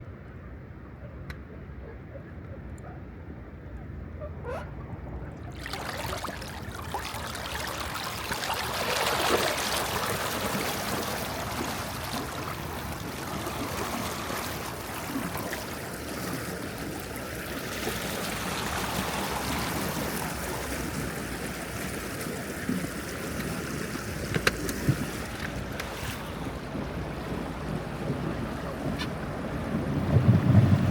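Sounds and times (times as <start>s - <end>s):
wind noise: 4.2s - 30.9s
rushing water: 5.3s - 30.9s
boat motor running: 18.3s - 30.9s.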